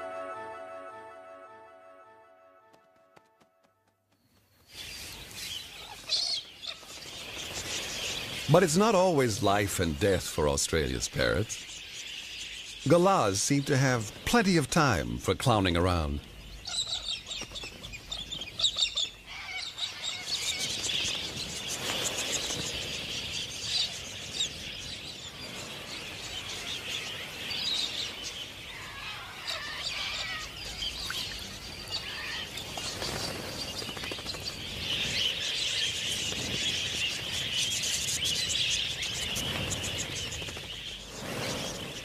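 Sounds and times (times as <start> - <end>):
parrots chattering and calling: 16.6 - 20.6, 28.6 - 32.7.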